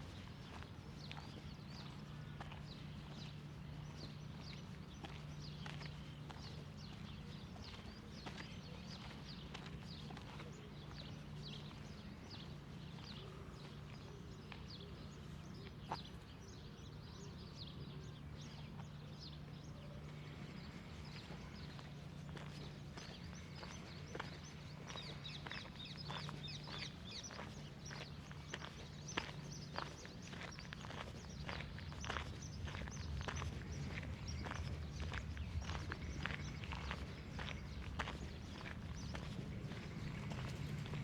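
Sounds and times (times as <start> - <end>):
footsteps on a path: 0.0 - 16.6, 19.6 - 41.0
small birds chirping: 0.0 - 41.0
steady low hum: 17.9 - 41.0.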